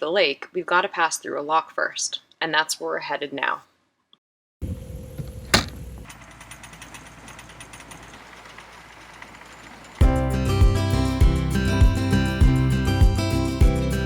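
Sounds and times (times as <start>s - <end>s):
boat engine humming: 4.7s - 6.4s
sharp knock: 5.2s - 6.1s.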